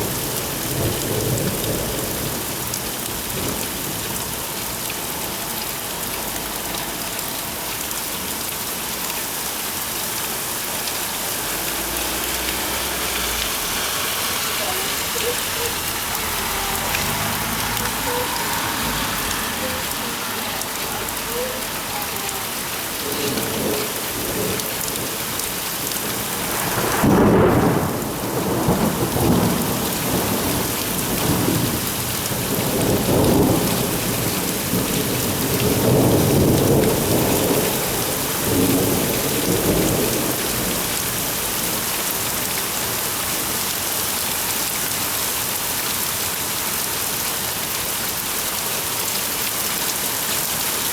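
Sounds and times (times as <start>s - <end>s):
heavy rain falling: 0.0s - 50.9s
rolling thunder: 23.3s - 41.0s.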